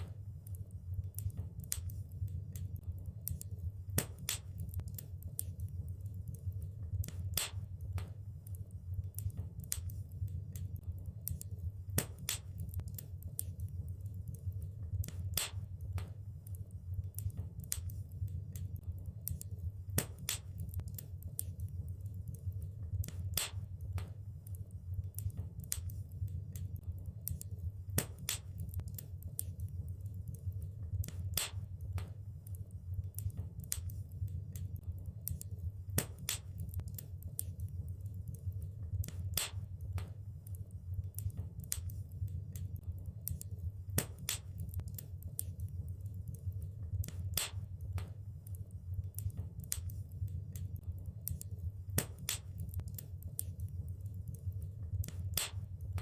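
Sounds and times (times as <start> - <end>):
fire crackling and popping: 0.0 - 56.0
low rumble of flames: 0.0 - 56.0.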